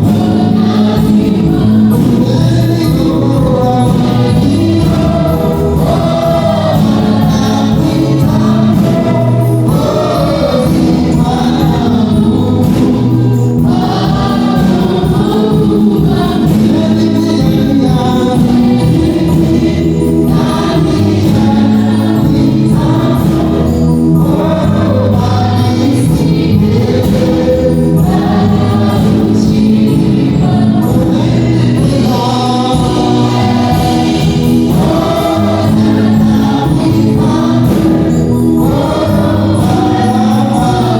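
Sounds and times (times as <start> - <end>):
choir singing gospel: 0.0 - 40.9
musical accompaniment: 0.0 - 40.9.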